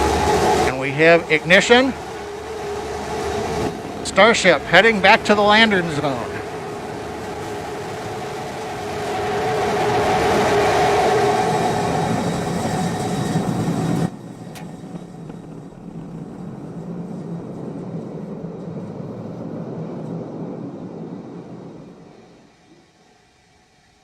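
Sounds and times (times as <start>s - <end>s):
low rumble: 0.0s - 22.6s
rocket engines roaring: 0.0s - 23.7s.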